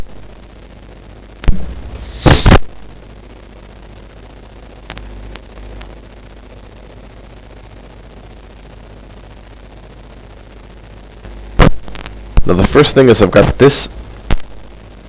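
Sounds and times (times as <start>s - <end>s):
crackling burst: 0.0s - 15.0s
microphone hiss and hum: 0.0s - 15.0s
loud clipped thump: 1.4s - 2.7s.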